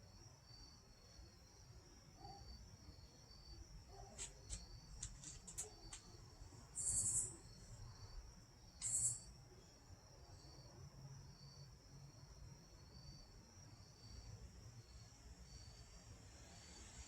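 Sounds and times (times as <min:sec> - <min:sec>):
crickets chirping: 0:00.0 - 0:17.0
sharp clicks: 0:04.2 - 0:06.1.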